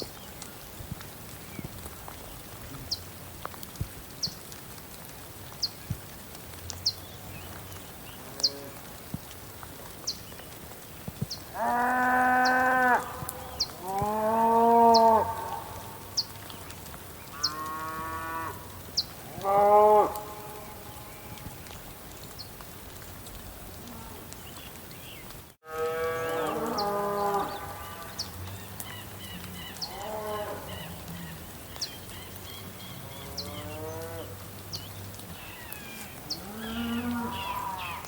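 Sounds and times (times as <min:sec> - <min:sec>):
cattle mooing: 0:36.4 - 0:38.0.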